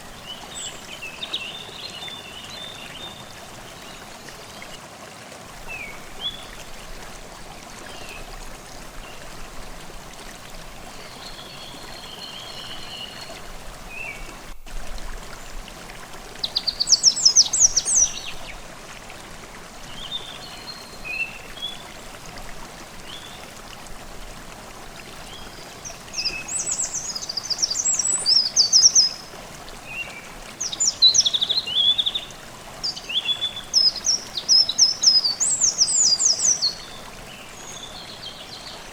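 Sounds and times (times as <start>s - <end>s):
stream babbling: 0.0s - 38.9s
birdsong: 16.4s - 18.6s, 25.2s - 38.9s.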